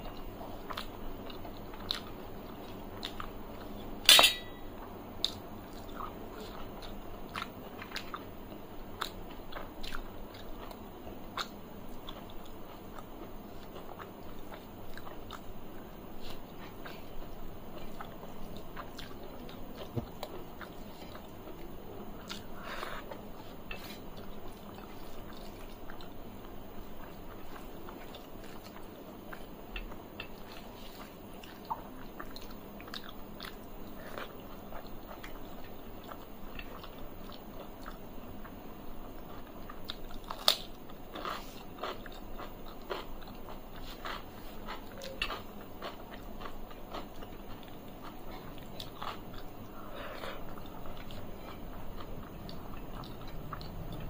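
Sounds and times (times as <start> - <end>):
person chewing food: 0.1 - 54.0
food mixed on metal plate: 4.1 - 4.7.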